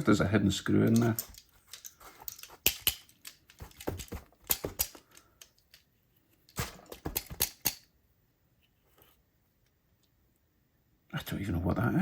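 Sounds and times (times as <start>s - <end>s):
clicks and taps of small tools: 0.9s - 5.8s.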